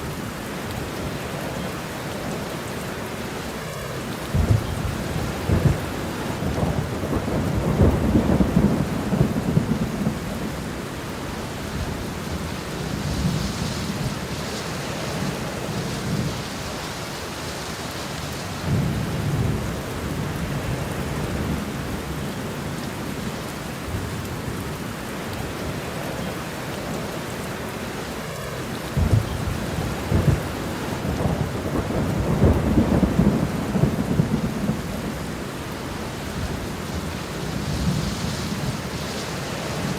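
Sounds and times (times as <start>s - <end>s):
steady rain falling: 0.0s - 39.9s
rolling thunder: 4.2s - 10.7s, 28.8s - 39.9s.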